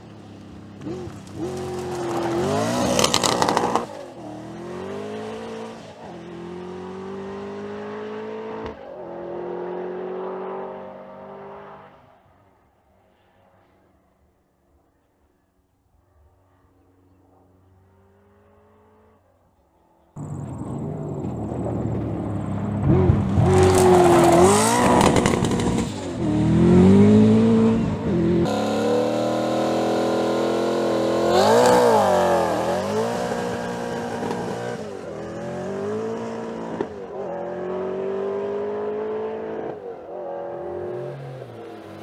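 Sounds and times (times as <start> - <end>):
car engine accelerating hard: 20.2 - 42.0.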